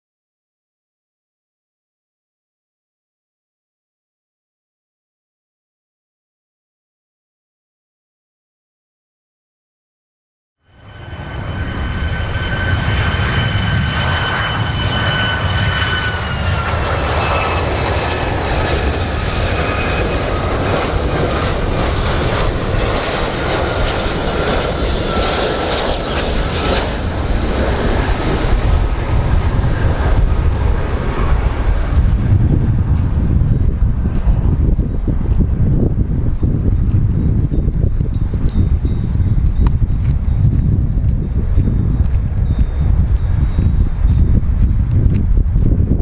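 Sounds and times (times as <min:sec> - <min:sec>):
airplane engines rumbling: 0:10.6 - 0:46.0
high engine whine: 0:10.6 - 0:46.0.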